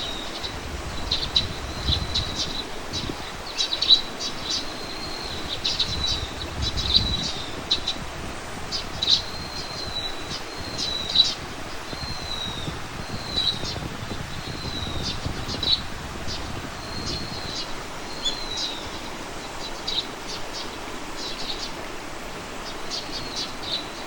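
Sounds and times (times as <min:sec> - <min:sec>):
small birds chirping: 0:00.0 - 0:24.0
thin whistled bird notes: 0:08.7 - 0:21.8.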